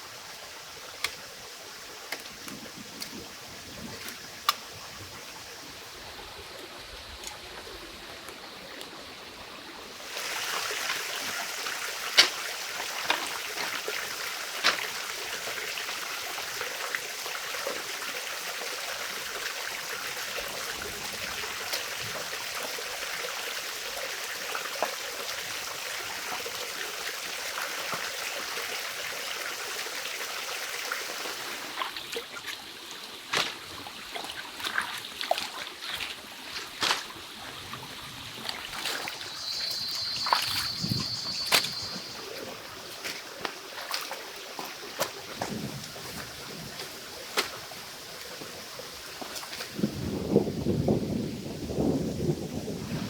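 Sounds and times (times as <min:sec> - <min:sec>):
stream water rushing: 0:00.0 - 0:50.7
small water splashes: 0:00.3 - 0:18.0, 0:31.0 - 0:49.8.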